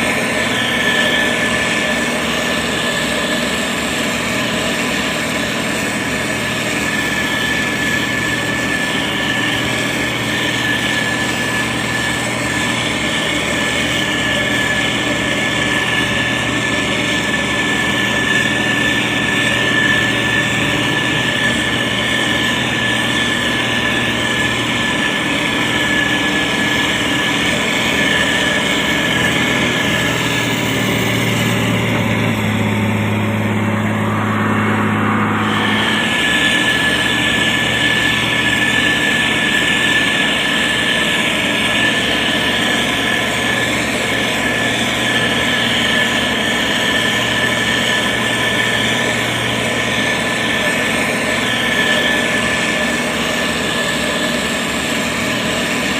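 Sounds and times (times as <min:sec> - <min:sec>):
diesel engine running: 0:00.0 - 0:55.9
high whine: 0:00.0 - 0:55.9.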